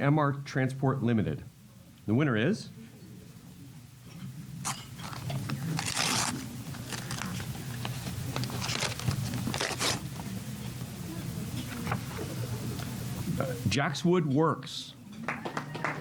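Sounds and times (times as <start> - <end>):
steady low hum: 0.0 - 16.0
paper rustling and tearing: 4.7 - 10.1.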